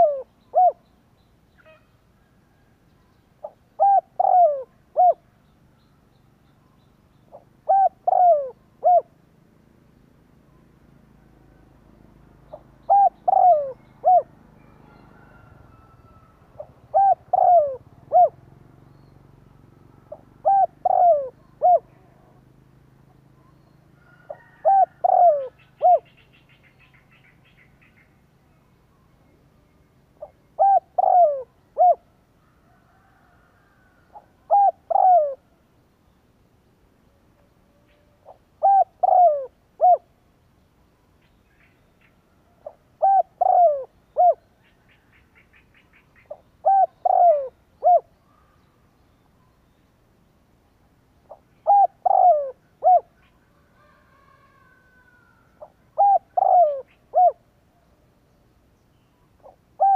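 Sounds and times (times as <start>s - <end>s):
dove cooing: 0.0s - 0.9s, 3.4s - 5.3s, 7.3s - 9.2s, 12.5s - 18.8s, 20.0s - 28.1s, 30.2s - 32.1s, 32.7s - 35.5s, 37.7s - 40.1s, 42.5s - 48.5s, 51.3s - 57.5s, 59.4s - 59.9s.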